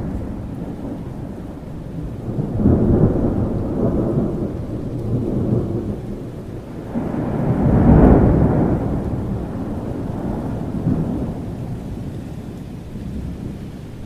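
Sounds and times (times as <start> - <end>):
rolling thunder: 0.0 - 14.0
steady rain: 0.0 - 14.0.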